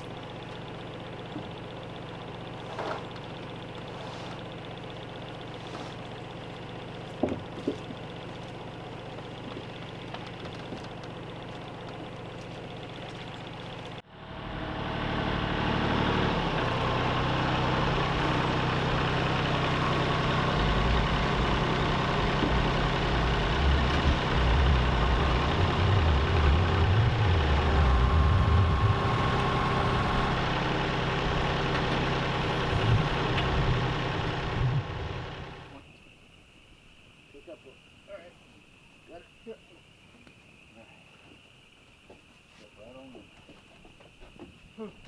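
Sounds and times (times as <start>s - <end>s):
tractor engine running: 0.0s - 35.8s.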